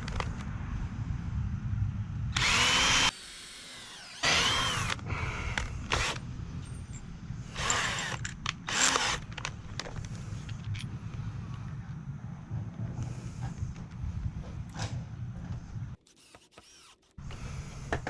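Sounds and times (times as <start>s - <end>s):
cordless drill whining: 2.4s - 6.8s, 7.5s - 9.4s, 16.1s - 17.4s.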